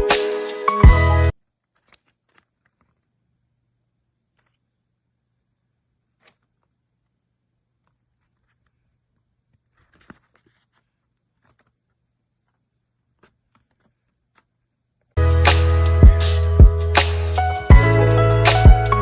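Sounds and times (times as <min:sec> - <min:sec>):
faint handling clicks and rustles: 0:01.5 - 0:04.9, 0:06.0 - 0:15.2.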